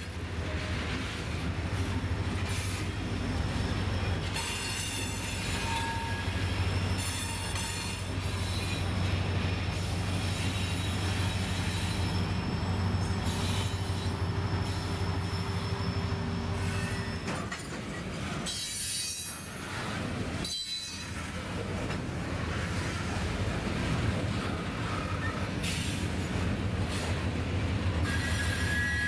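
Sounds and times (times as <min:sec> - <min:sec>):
diesel locomotive engine drone: 0:00.0 - 0:29.0
high-pitched wheel squeal: 0:03.8 - 0:08.9, 0:10.4 - 0:17.4, 0:28.0 - 0:29.0.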